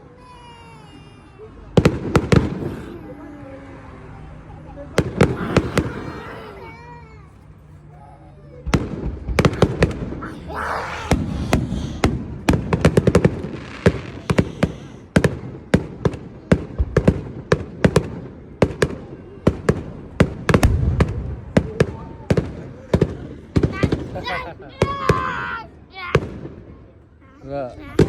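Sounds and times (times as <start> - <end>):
fireworks bangs and crackles: 12.0 - 23.7.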